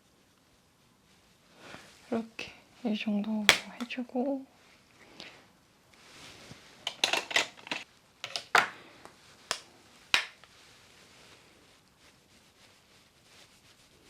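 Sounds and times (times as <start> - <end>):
plastic makeup cases clicking: 3.5 - 3.9, 6.9 - 8.8, 10.2 - 10.4.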